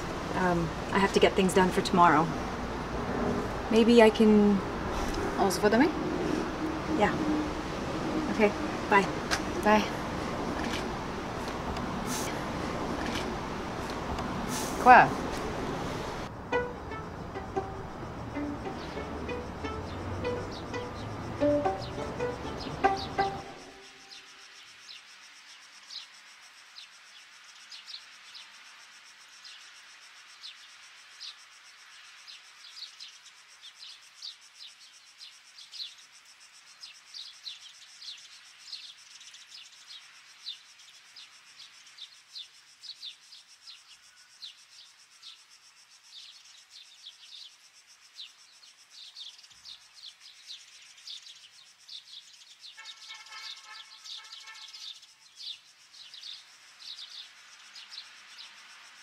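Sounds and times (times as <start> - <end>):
small birds chirping: 3.7 - 16.3, 17.0 - 28.5, 30.4 - 59.0
lower fuller bird call: 52.6 - 58.0.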